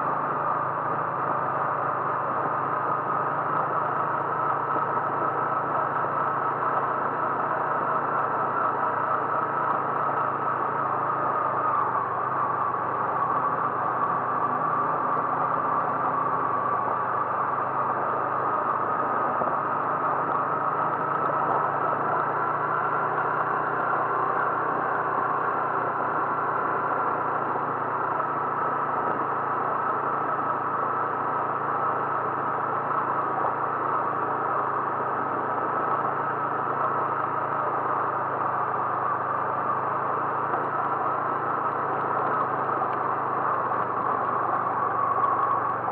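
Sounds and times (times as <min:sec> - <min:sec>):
car engine and road noise: 0:00.0 - 0:45.9.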